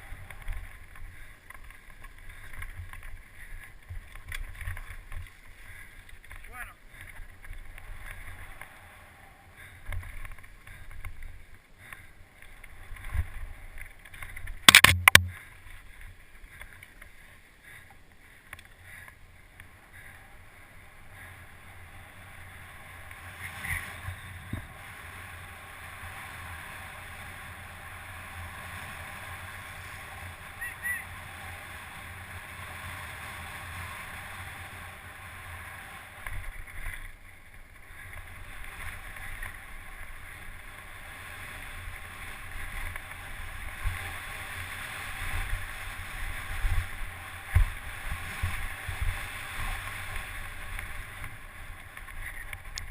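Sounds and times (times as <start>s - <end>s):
steady rushing noise: 0.0s - 52.9s
sharp knocks: 14.7s - 15.3s.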